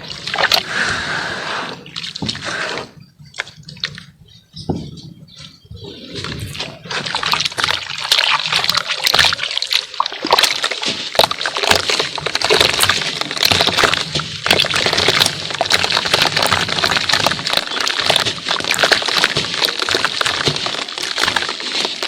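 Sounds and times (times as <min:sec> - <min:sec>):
water sloshing: 0:00.0 - 0:04.2, 0:04.8 - 0:22.0
cement crumbling with small crackles: 0:10.2 - 0:22.0.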